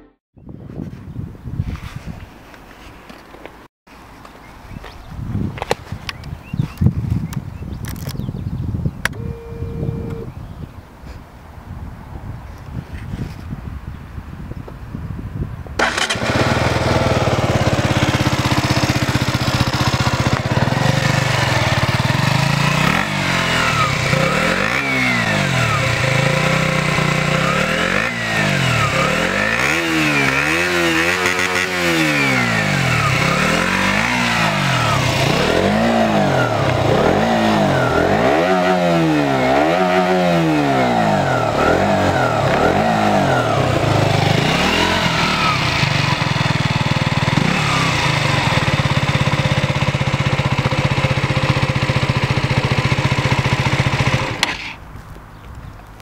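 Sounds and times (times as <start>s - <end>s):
motorcycle engine idling and revving: 14.4s - 56.0s.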